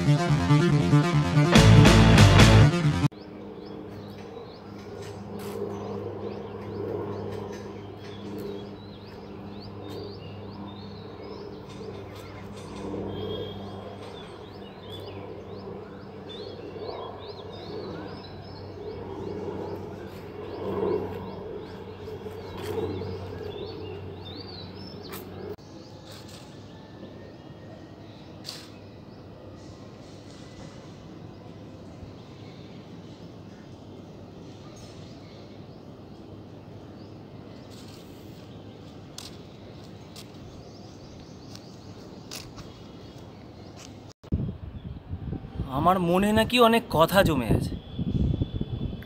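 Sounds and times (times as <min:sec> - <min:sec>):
low outdoor hum: 0:00.0 - 0:45.6
small birds chirping: 0:36.8 - 0:44.1.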